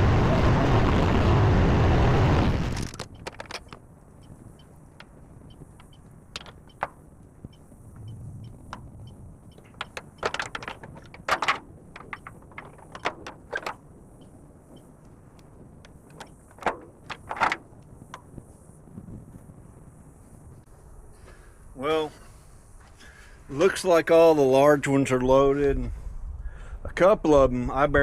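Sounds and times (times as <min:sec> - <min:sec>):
faint low engine hum: 0:04.0 - 0:10.2
sharp knocks and clatters: 0:05.0 - 0:07.0, 0:09.5 - 0:13.8, 0:15.9 - 0:18.3.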